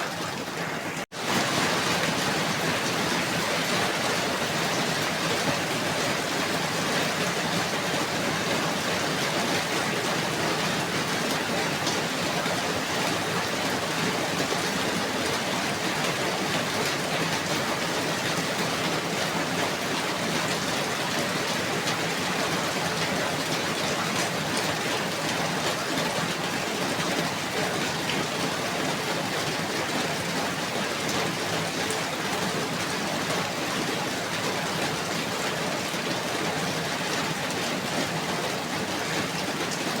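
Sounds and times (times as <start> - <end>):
steady rain hissing: 0.1 - 16.8
raindrops striking a surface: 0.1 - 40.0.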